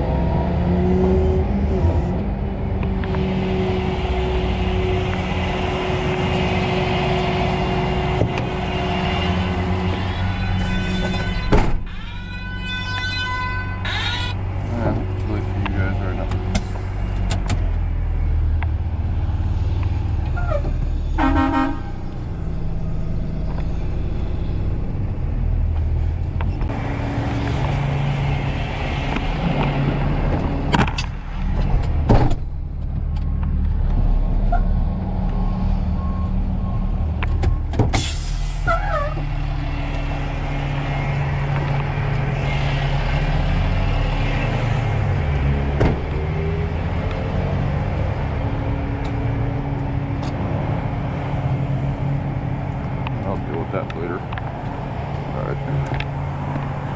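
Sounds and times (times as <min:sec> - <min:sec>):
vehicle engine droning: 0:00.0 - 0:12.2, 0:12.8 - 0:56.9.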